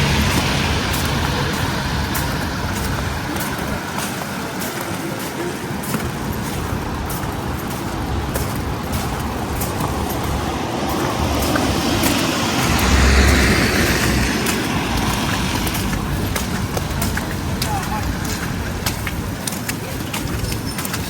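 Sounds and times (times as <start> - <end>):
city street traffic: 0.0 - 21.0
vehicle passing close: 8.1 - 18.8.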